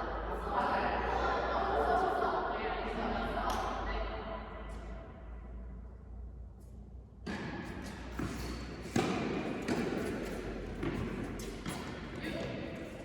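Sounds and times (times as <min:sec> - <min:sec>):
tennis ball thuds: 0:07.2 - 0:12.6.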